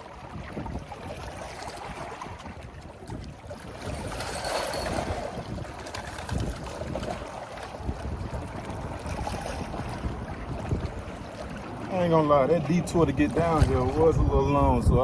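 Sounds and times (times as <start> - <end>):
wind buffeting microphone: 0.0 - 15.0
water washing: 3.8 - 14.9.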